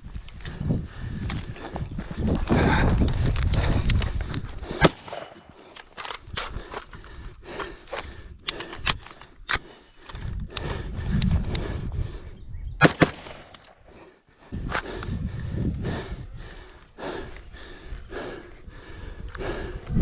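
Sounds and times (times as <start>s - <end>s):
rifle shots cracking: 12.8s - 13.6s.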